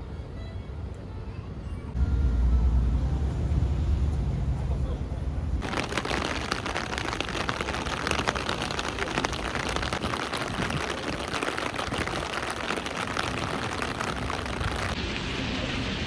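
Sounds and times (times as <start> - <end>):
rain pattering: 5.6 - 16.0.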